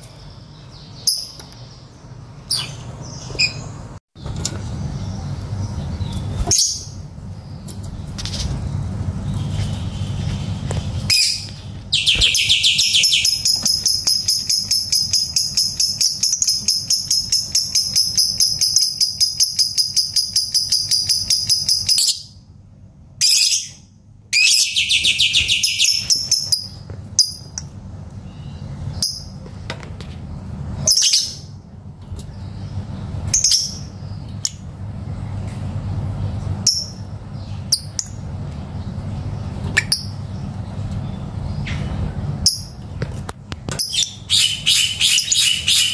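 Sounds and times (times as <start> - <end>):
lovebird trilling and chirping: 2.4 - 3.8, 11.1 - 22.3, 24.4 - 27.6, 43.8 - 45.9.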